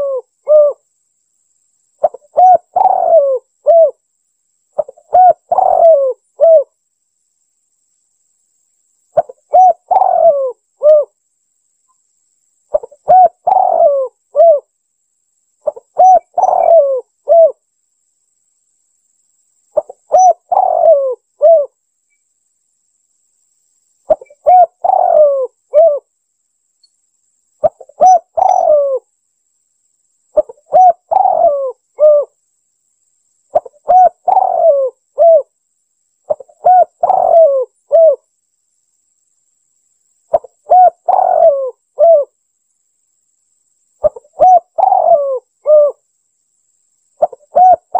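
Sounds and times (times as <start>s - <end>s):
dove cooing: 0.0s - 0.8s, 2.0s - 4.0s, 4.8s - 6.7s, 9.2s - 11.2s, 12.7s - 14.7s, 15.6s - 17.6s, 19.8s - 21.8s, 24.1s - 26.1s, 27.6s - 29.1s, 30.4s - 32.4s, 33.5s - 35.5s, 36.3s - 38.3s, 40.3s - 42.4s, 44.0s - 46.0s, 47.2s - 47.9s.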